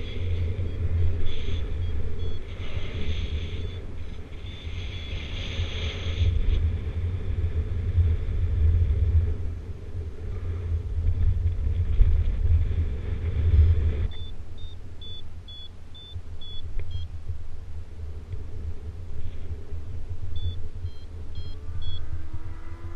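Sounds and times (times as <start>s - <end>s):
wind buffeting microphone: 0.0s - 22.9s
short high variometer beeps: 0.4s - 2.6s, 14.1s - 17.1s, 20.3s - 22.1s.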